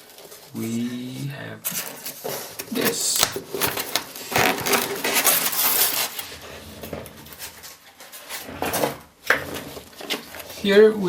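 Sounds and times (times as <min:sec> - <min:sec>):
packaging rustling and crinkling: 0:01.6 - 0:08.4.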